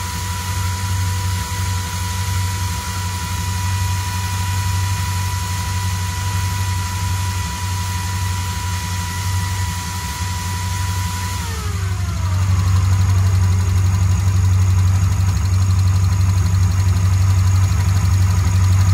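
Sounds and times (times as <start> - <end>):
vee eight engine idling: 0.0 - 18.9.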